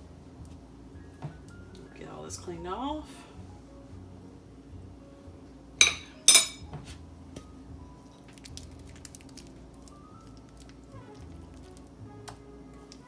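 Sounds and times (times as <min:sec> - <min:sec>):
utensil clinking and scraping bowl: 0:05.8 - 0:06.6.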